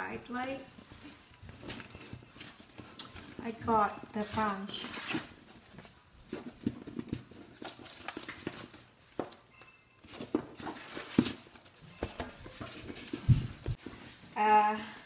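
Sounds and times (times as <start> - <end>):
packaging rustling: 4.1 - 14.3.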